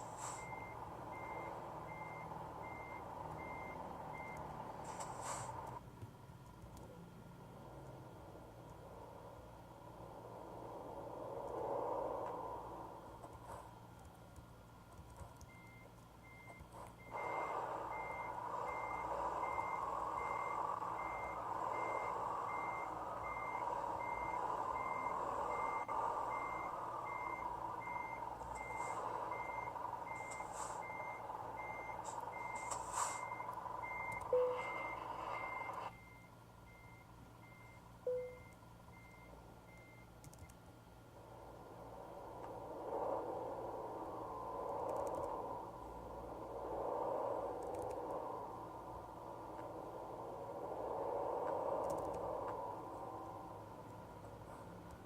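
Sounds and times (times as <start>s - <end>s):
truck reversing alarm beeping: 0.0s - 5.8s, 15.2s - 40.5s, 41.3s - 53.6s.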